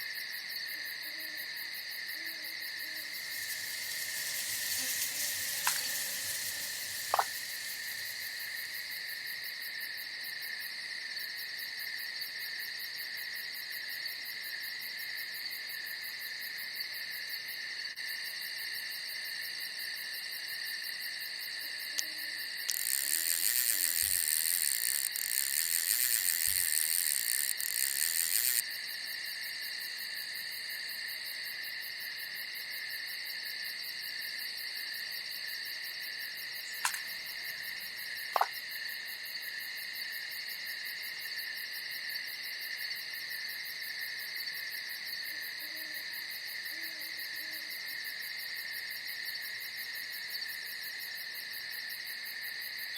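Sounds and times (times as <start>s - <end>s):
crickets and insects trilling: 0.0s - 52.9s
sharp clicks: 3.3s - 8.5s, 22.7s - 28.6s, 36.8s - 37.1s.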